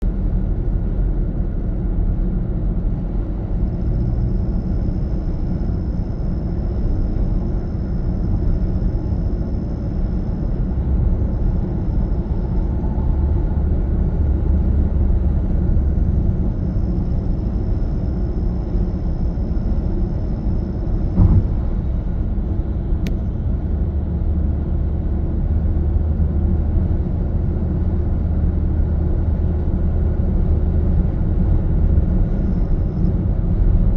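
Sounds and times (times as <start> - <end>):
car engine and road noise: 0.0 - 33.9
thump: 21.1 - 21.8.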